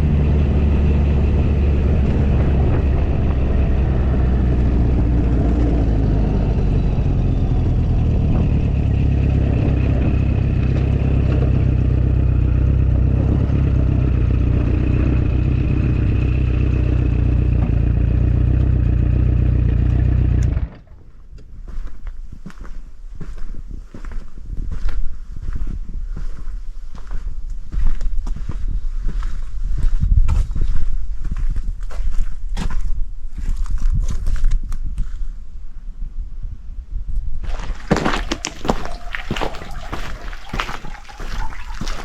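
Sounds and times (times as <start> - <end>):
motorcycle engine idling: 0.0 - 20.8.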